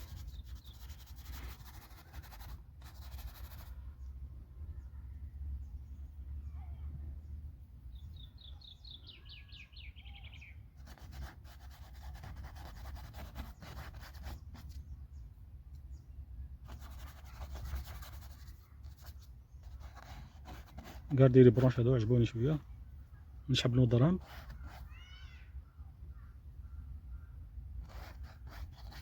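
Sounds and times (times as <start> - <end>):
paintbrush scrubbing and dabbing: 0.0 - 3.8, 10.8 - 14.8, 16.6 - 21.8, 24.2 - 24.9, 27.8 - 29.0
bird trill: 8.0 - 10.6.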